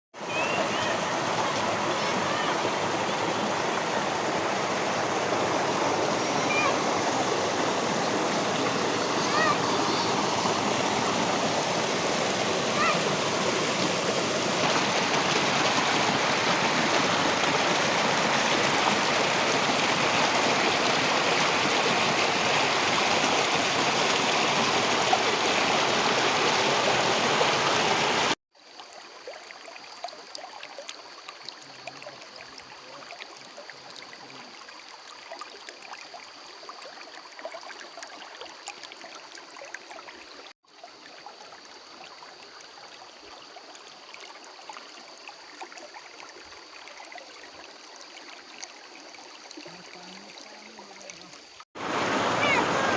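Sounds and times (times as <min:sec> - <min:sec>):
stream water rushing: 0:00.2 - 0:52.9
faint water trickle: 0:28.5 - 0:52.9.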